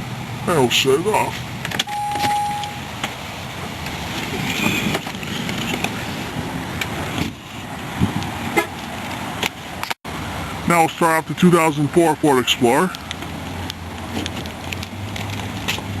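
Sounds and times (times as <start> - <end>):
car beep: 1.8 - 2.9.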